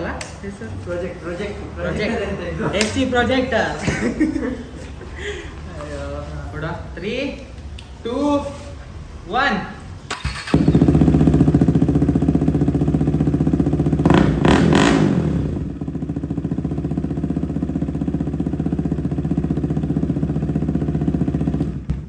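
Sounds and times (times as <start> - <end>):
motorcycle engine idling loudly: 10.4 - 22.0.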